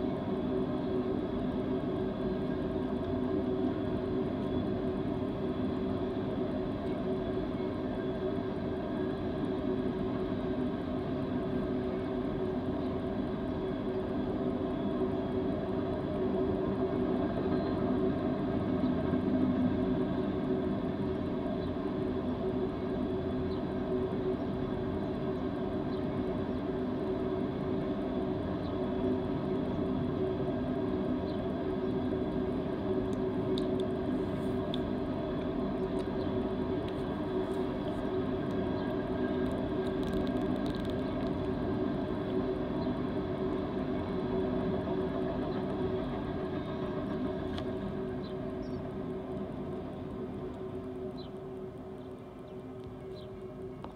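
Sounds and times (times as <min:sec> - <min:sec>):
train wheels rumbling on rail: 0:00.0 - 0:51.9
droning hum: 0:00.0 - 0:53.9
faint clicks: 0:39.4 - 0:41.6.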